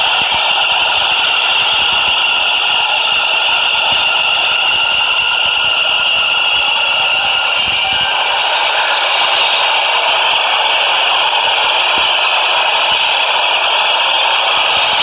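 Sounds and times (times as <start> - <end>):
subway train rattling: 0.0 - 15.0.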